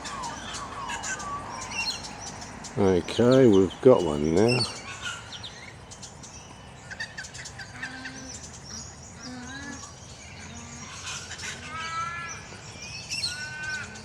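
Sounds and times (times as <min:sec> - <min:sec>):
birds chirping: 0:00.0 - 0:14.0
low bird calls: 0:00.0 - 0:14.0.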